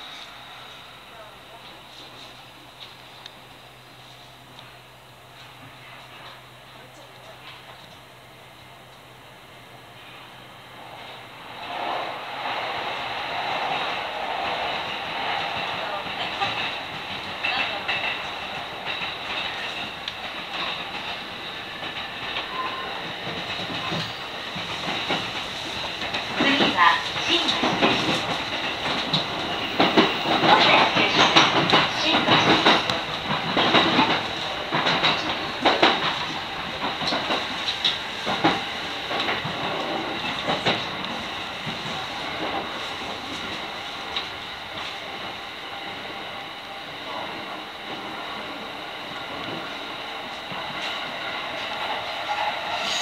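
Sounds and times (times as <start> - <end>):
train running rumble: 0.0 - 53.0
wheels clacking over rail joints: 13.7 - 45.1.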